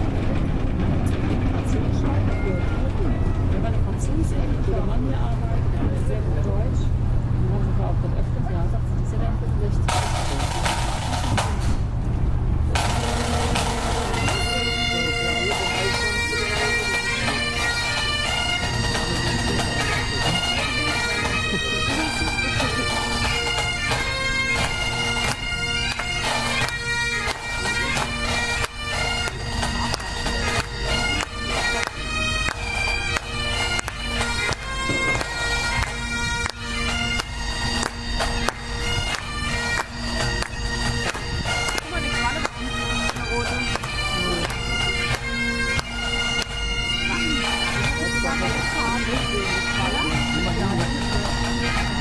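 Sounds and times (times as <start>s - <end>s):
bagpipe band playing: 0.0s - 11.9s, 12.7s - 52.0s
wind buffeting microphone: 18.5s - 23.8s.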